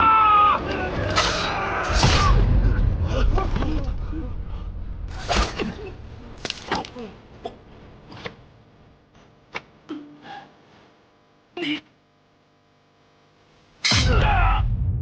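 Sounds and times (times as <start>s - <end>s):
men shouting and crying out: 0.0s - 4.0s, 13.9s - 14.7s
sharp weapon strikes: 1.2s - 2.4s, 13.8s - 14.4s.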